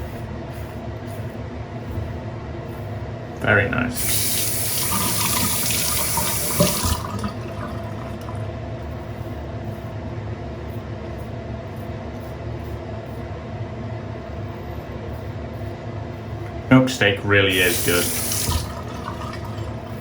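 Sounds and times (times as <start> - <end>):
low background hum: 0.0 - 20.0
tap water running into sink: 3.9 - 8.4, 17.5 - 20.0.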